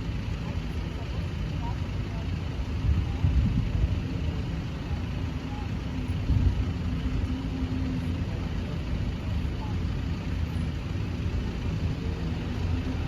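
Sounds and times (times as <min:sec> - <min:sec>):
car engines running and idling: 0:00.0 - 0:13.0.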